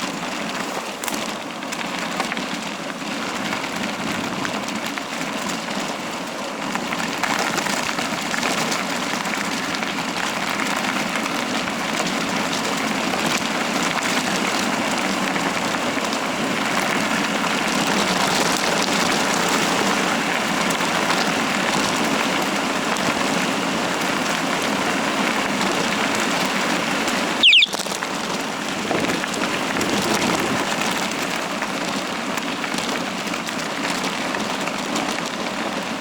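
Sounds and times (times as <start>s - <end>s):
high squeak: 27.4s - 27.8s.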